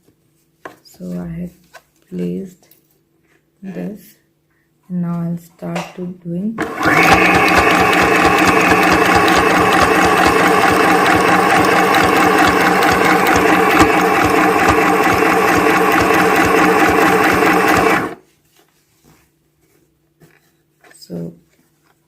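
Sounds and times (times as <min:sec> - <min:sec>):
electric sewing machine stitching: 0:06.6 - 0:18.2.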